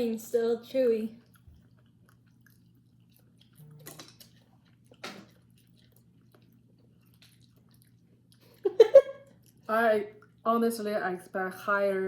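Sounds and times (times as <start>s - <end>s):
person chewing: 1.1s - 10.5s.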